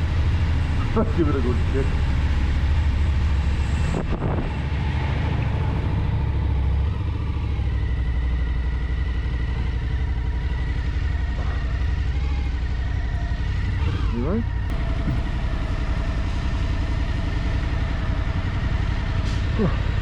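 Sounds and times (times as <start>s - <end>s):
motorcycle engine idling: 5.8s - 20.0s.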